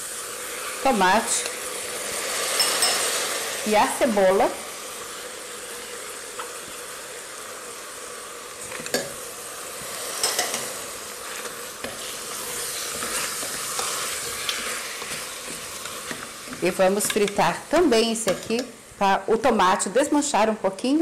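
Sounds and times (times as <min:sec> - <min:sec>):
food sizzling in hot oil: 0:00.0 - 0:21.0
spoon stirring and knocking pot: 0:10.2 - 0:10.7, 0:14.5 - 0:18.7.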